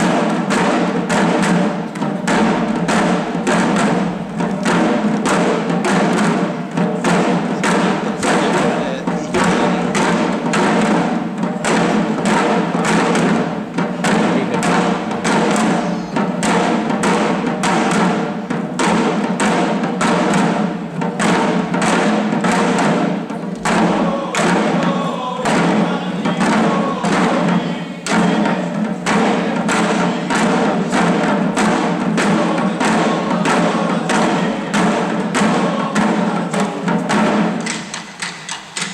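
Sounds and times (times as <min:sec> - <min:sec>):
voices chanting: 0:00.0 - 0:37.9
drums beating fast: 0:00.0 - 0:38.9.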